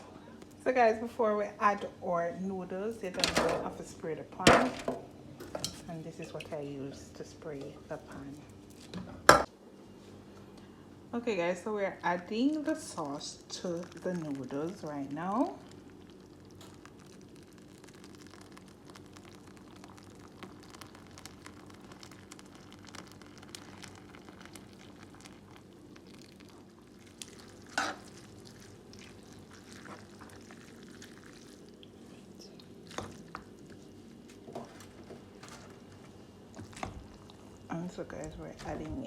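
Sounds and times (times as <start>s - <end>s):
spoon stirring and scraping pot: 5.4s - 5.9s, 27.3s - 28.3s.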